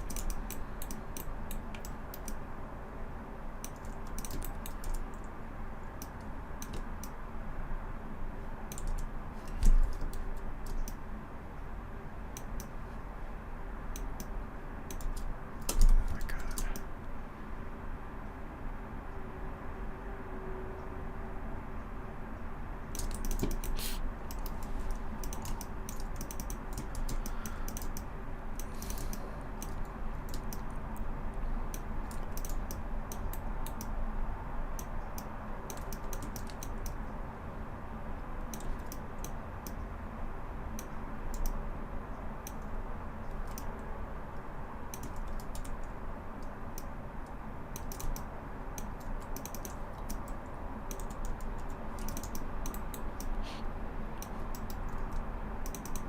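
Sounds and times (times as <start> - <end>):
keyboard keys clicking: 0.0 - 2.4, 3.6 - 5.3, 6.0 - 7.2, 8.7 - 11.0, 14.9 - 16.8, 22.9 - 31.0, 31.7 - 33.9, 44.9 - 46.9, 47.8 - 53.4, 54.2 - 56.0
steady background hum: 0.0 - 56.0.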